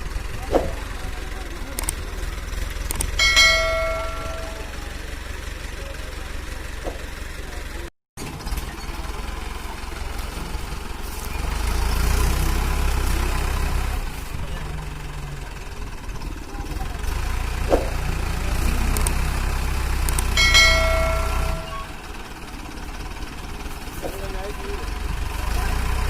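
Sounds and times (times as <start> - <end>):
tractor diesel engine rumbling: 0.0 - 26.0
high-pitched tone: 3.2 - 4.9, 20.4 - 22.0.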